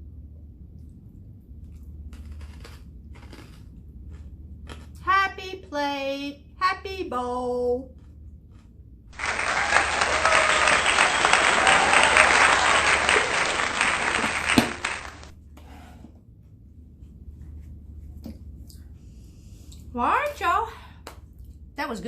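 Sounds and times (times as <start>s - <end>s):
applause: 9.2s - 15.4s.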